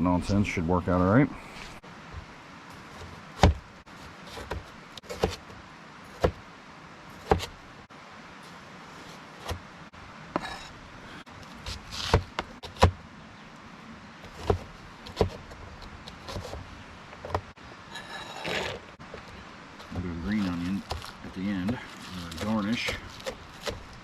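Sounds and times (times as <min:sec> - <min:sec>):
scrape or rustle: 0:08.4 - 0:09.6, 0:11.4 - 0:12.3, 0:17.9 - 0:23.8.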